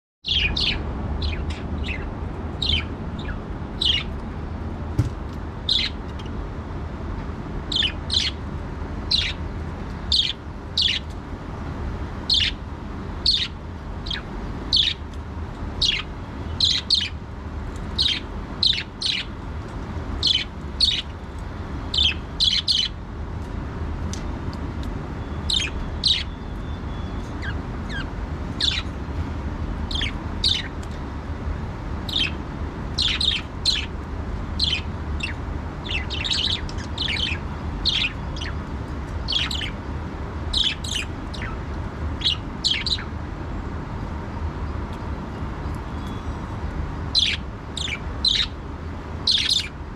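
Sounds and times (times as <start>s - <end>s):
steady low hum: 0.2s - 49.9s
budgerigars chirping and squawking: 0.3s - 4.1s, 5.6s - 6.4s, 7.7s - 8.4s, 9.1s - 9.4s, 10.1s - 11.2s, 12.3s - 12.6s, 13.2s - 15.1s, 15.8s - 17.2s, 17.8s - 19.4s, 20.1s - 21.2s, 21.9s - 23.0s, 25.4s - 28.9s, 29.8s - 30.9s, 32.0s - 34.0s, 34.6s - 39.8s, 40.5s - 43.1s, 47.1s - 48.6s, 49.2s - 49.8s.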